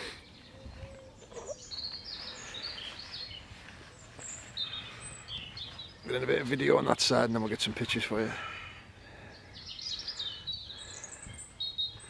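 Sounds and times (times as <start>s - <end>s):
birds chirping and trilling: 0.0s - 12.0s
quiet outdoor background noise: 0.0s - 12.0s.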